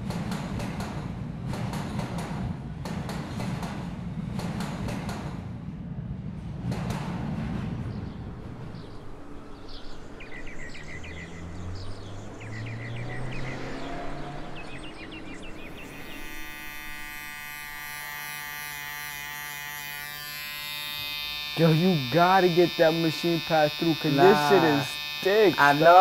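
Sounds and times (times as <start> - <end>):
electric hair clippers buzzing: 15.7 - 26.0.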